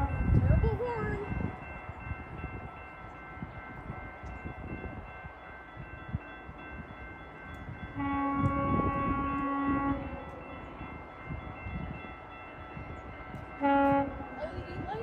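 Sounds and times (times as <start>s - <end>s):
diesel locomotive rumble: 0.0s - 5.2s, 7.3s - 15.0s
railway crossing bells ringing: 0.0s - 15.0s
train air horn blast: 8.0s - 10.4s, 13.6s - 14.8s.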